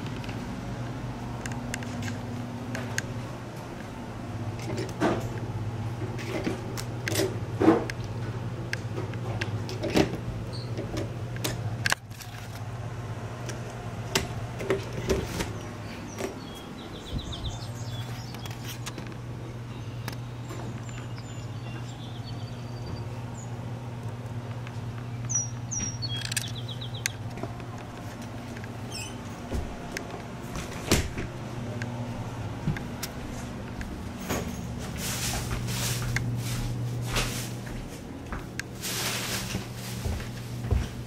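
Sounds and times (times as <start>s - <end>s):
steady low hum: 0.0s - 41.0s
birds chirping and trilling: 15.3s - 23.9s, 24.7s - 27.8s, 28.4s - 29.5s.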